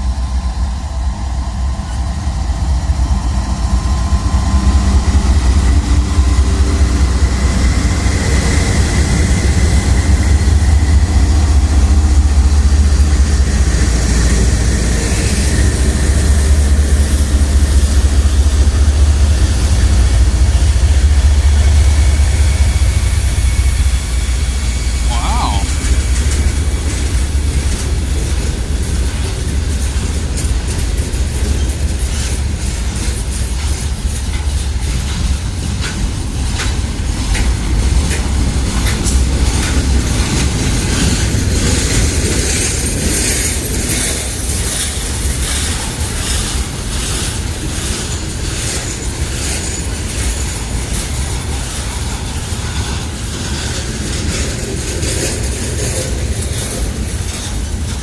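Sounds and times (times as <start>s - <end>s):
freight train rumbling: 0.0s - 58.0s
wheels clicking over rail joints: 25.7s - 58.0s.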